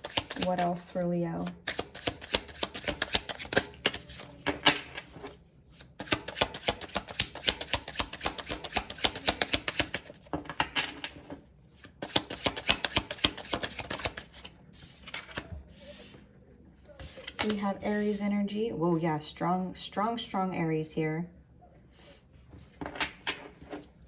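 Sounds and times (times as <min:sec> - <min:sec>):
cards being shuffled: 0:00.0 - 0:00.7, 0:01.5 - 0:10.2, 0:11.8 - 0:16.2, 0:17.0 - 0:18.2.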